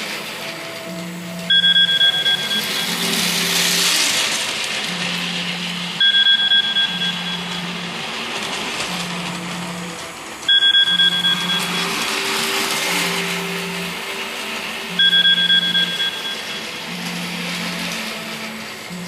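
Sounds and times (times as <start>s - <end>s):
high electronic beeps: 0.9s - 4.1s, 4.9s - 8.1s, 9.0s - 14.2s, 14.8s - 17.8s.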